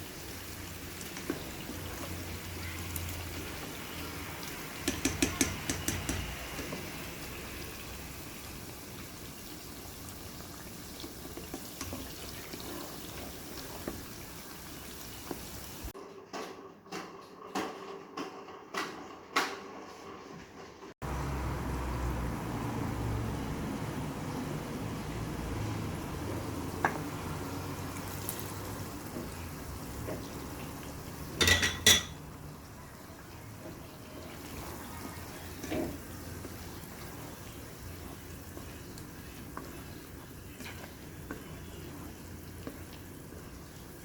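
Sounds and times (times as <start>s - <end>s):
cooking hiss: 0.0s - 16.0s, 21.0s - 44.0s
utensils clinking against cookware: 4.8s - 6.7s, 31.3s - 32.3s.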